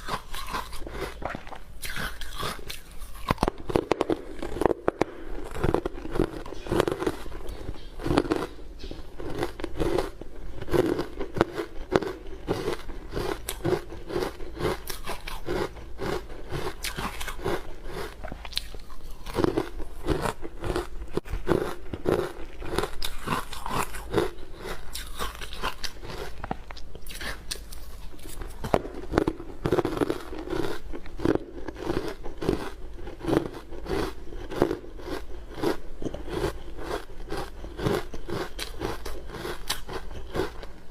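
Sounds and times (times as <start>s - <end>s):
chewing crunchy ice: 0.0s - 40.9s.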